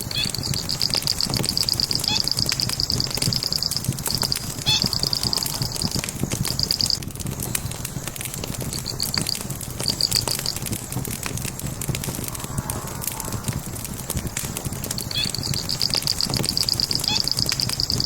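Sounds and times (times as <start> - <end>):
logs crackling and popping: 0.0 - 18.0
rumble of flames: 0.0 - 18.0
high-pitched chirping trills: 0.1 - 7.0.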